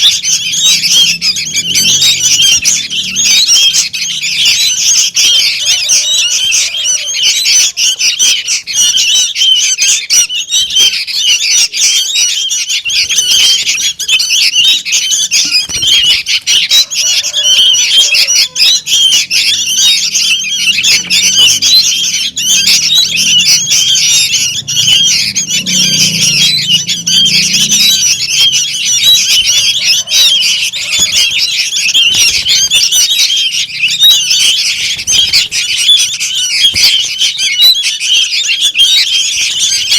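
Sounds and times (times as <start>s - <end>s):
bird chicks begging calls: 0.0s - 39.9s.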